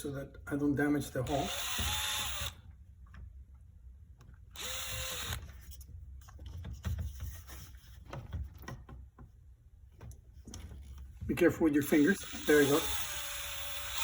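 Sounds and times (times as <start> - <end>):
electric drill whining: 1.3 - 2.6, 4.6 - 5.4, 11.9 - 14.0.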